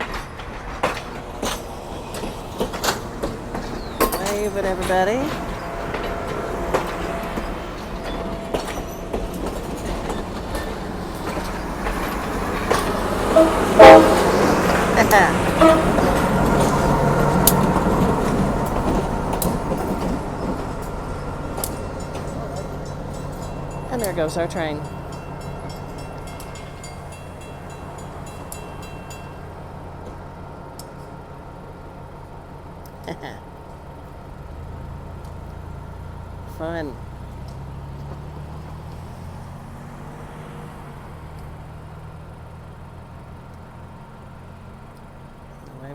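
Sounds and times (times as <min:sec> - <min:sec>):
train wheels clacking over rail joints: 0:00.0 - 0:33.0
low engine rumble: 0:00.0 - 0:45.9.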